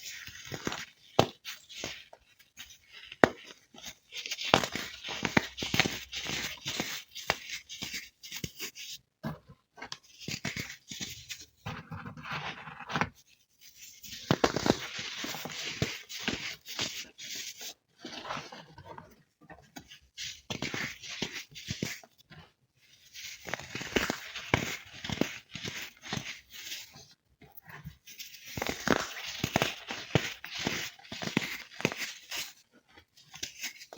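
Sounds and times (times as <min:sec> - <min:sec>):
baked baking soda crunching: 0:02.8 - 0:08.1, 0:23.3 - 0:26.6, 0:28.4 - 0:32.6.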